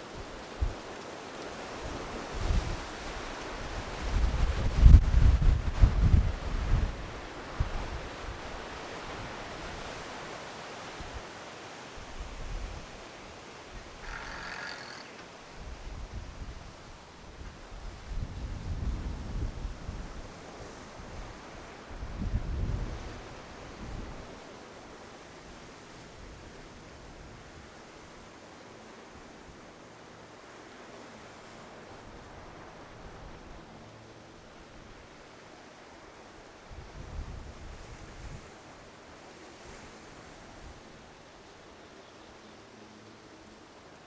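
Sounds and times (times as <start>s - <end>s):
ocean surf washing on shore: 0.0s - 16.0s, 19.6s - 41.8s
wind: 0.0s - 44.0s
wind buffeting microphone: 1.9s - 8.4s, 22.0s - 24.3s.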